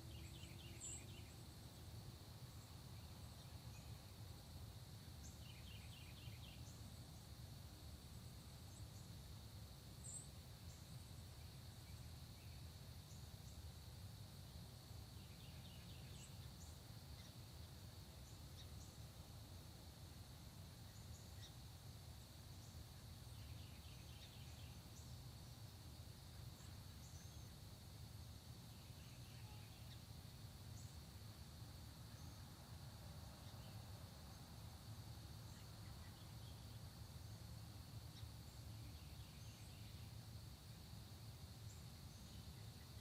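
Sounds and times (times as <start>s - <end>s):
faint bird chirps: 0.0s - 4.3s, 5.0s - 7.3s, 10.0s - 13.7s, 15.1s - 19.2s, 20.4s - 25.5s, 26.2s - 27.8s, 28.6s - 31.2s, 32.1s - 32.6s, 33.3s - 34.5s, 35.4s - 40.3s
insect drone: 0.0s - 43.0s.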